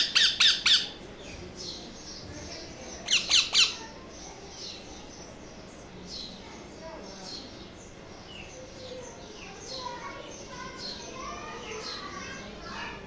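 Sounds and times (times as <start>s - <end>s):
soft parrot calls: 0.0s - 1.0s, 3.1s - 3.8s
parrot chicks squawking: 0.0s - 1.1s, 3.0s - 3.9s.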